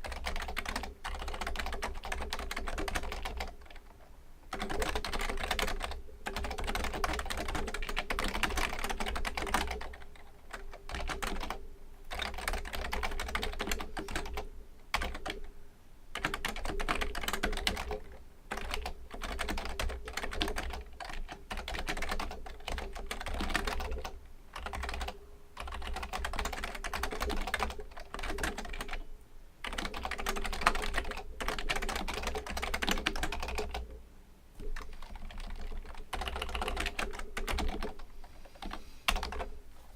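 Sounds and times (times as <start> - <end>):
fast keyboard typing: 0.0 - 3.9, 4.5 - 15.4, 16.2 - 29.0, 29.6 - 34.0, 34.7 - 39.5.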